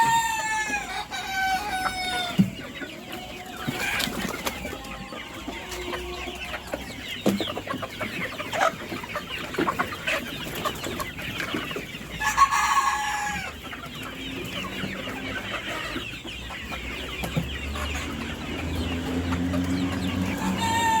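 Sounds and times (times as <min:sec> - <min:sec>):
chickens clucking: 0:00.0 - 0:21.0
rooster crowing: 0:20.0 - 0:21.0.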